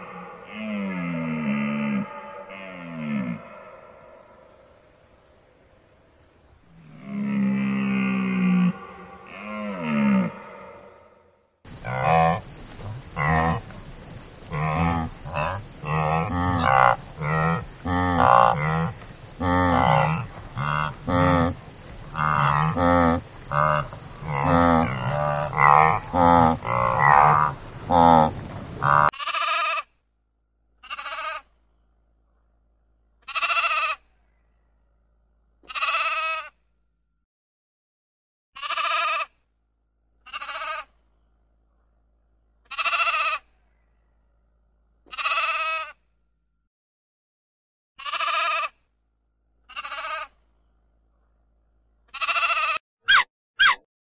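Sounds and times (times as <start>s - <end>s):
wildebeest calling: 14.5s - 29.8s
sheep bleating: 33.3s - 34.0s, 38.6s - 39.3s, 45.1s - 45.9s, 48.0s - 48.7s, 49.7s - 50.3s, 52.2s - 52.8s.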